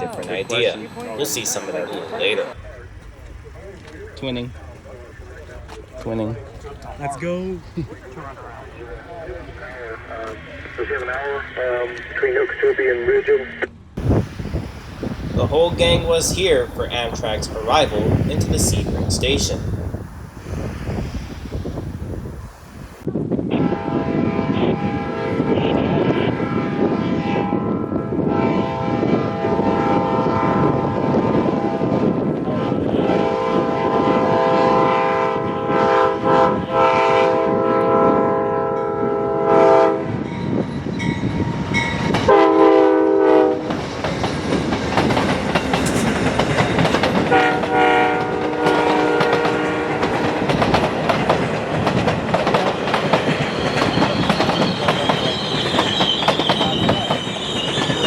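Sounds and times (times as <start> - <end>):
wheels clacking over rail joints: 14.2 - 20.7, 43.6 - 58.0
locomotive horn blasts: 23.5 - 30.7, 32.6 - 40.2, 42.3 - 43.7, 47.3 - 50.0
high brake squeal: 53.4 - 58.0.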